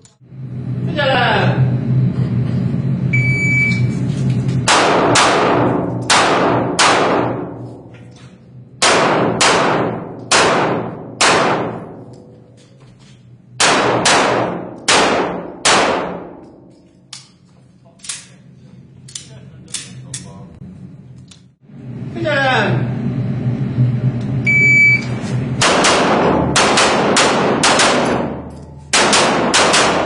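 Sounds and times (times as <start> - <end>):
electronic shot timer beep: 3.2 - 3.9, 24.5 - 25.1
handgun shots ringing: 25.6 - 30.0.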